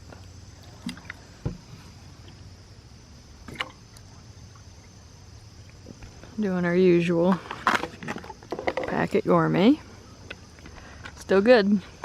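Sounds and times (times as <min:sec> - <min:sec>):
low thump: 0:01.4 - 0:01.7
camp cooking gear knocks and clicks: 0:07.5 - 0:09.1.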